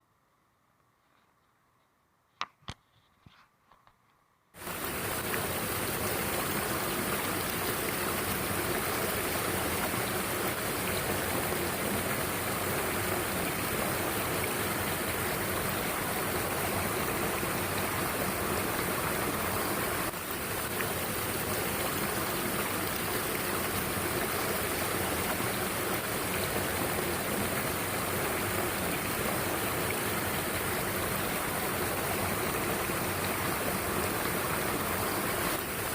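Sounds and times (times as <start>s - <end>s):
stream rushing over rocks: 4.6s - 35.9s.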